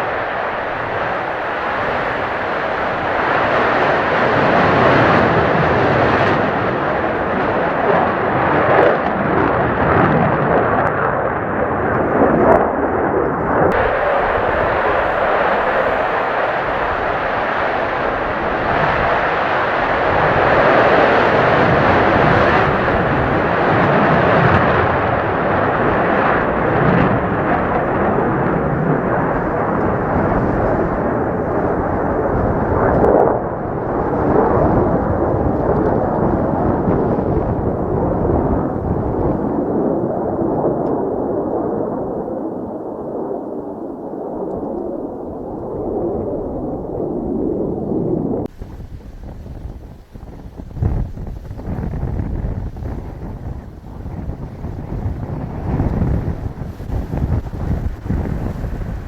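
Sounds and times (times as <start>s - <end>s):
jet engine roar: 0.0s - 59.0s.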